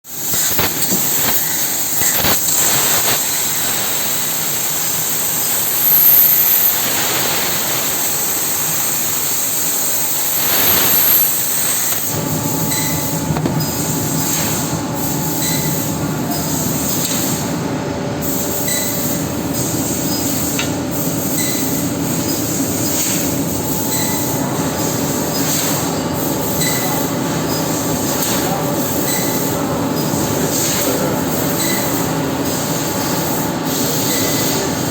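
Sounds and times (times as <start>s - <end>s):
laser cutter air hissing: 0.1s - 34.9s
low machine hum: 10.0s - 25.2s.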